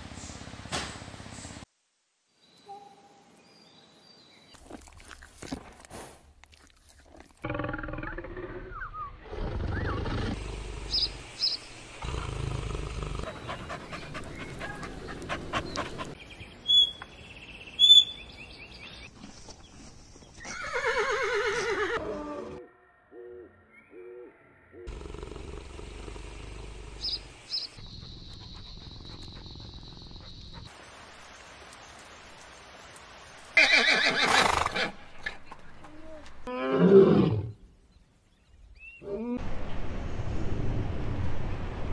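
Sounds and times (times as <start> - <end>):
horse whinnying: 20.5 - 22.6, 33.6 - 35.0.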